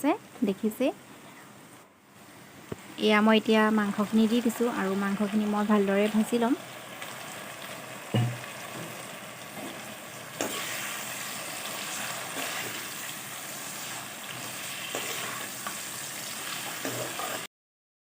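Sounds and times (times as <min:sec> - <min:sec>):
chicken sizzling in hot oil: 0:03.5 - 0:17.5.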